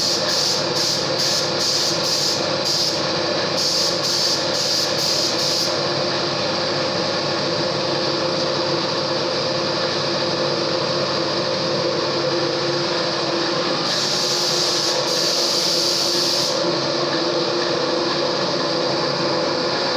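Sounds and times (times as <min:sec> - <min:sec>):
hiss: 0:00.0 - 0:03.0, 0:03.6 - 0:05.8, 0:13.8 - 0:16.7.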